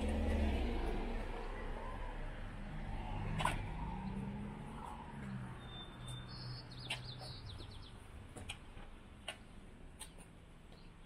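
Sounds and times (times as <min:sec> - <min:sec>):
songbird singing: 0:03.9 - 0:11.0.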